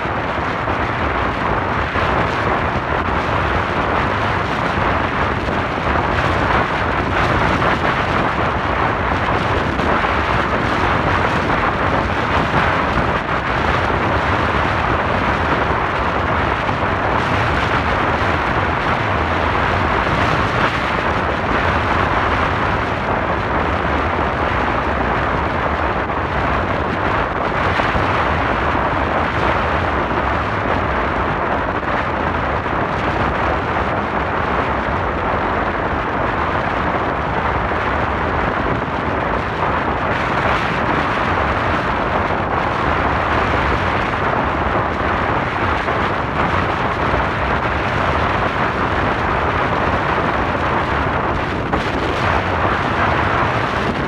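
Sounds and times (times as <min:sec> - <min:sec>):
wind rushing: 0:37.8 - 0:54.0.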